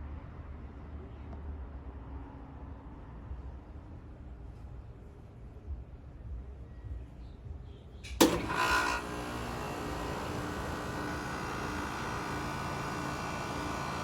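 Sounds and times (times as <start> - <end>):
air conditioner clunk: 8.1 - 14.0
air conditioner humming: 8.1 - 14.0.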